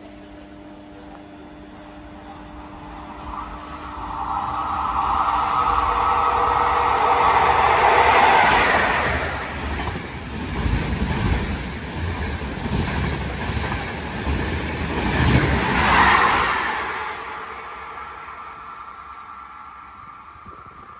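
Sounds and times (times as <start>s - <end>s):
train wheels rumbling over rail joints: 5.2s - 18.1s.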